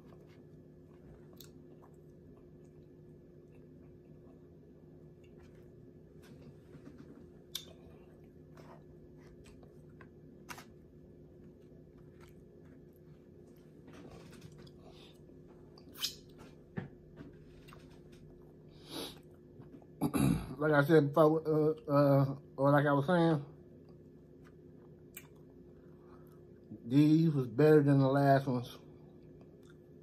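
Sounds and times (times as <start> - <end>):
person chewing food: 0.0 - 20.0, 23.8 - 26.7, 29.1 - 30.0
low steady hum: 0.0 - 30.0.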